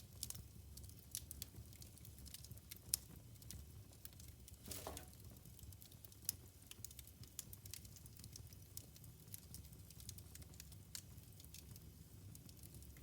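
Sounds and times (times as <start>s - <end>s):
wood fire crackling: 0.0s - 13.0s
fire popping: 2.4s - 8.6s.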